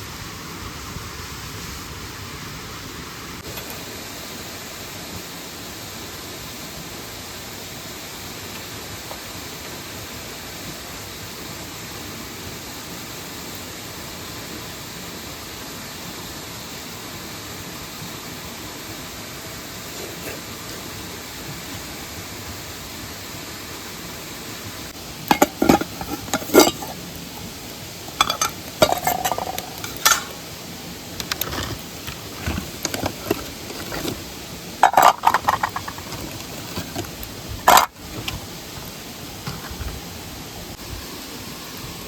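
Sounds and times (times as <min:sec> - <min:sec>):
waterfall rushing: 0:22.9 - 0:42.0
metal cookware clinking: 0:25.3 - 0:27.0, 0:28.1 - 0:30.4, 0:31.2 - 0:34.2, 0:34.8 - 0:37.1, 0:37.7 - 0:38.3.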